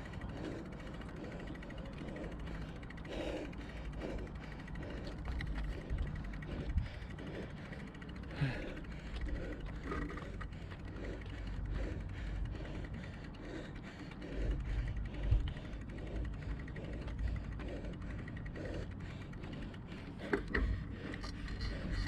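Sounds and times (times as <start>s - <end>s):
bicycle creaking and rattling: 0.0s - 22.0s
wind: 0.0s - 22.0s.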